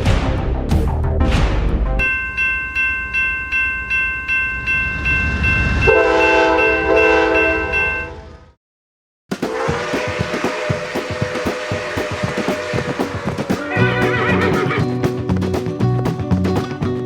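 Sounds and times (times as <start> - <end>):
train horn chord: 5.8 - 8.4, 9.4 - 14.4.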